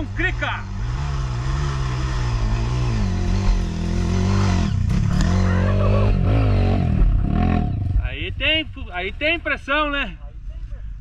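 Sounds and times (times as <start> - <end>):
dirt bike engine revving: 0.0 - 8.7.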